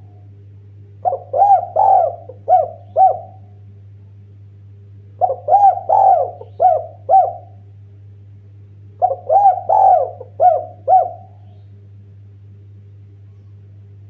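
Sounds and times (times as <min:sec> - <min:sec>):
steady low hum: 0:00.0 - 0:14.0
dove cooing: 0:01.0 - 0:03.6, 0:05.2 - 0:07.6, 0:09.0 - 0:11.7.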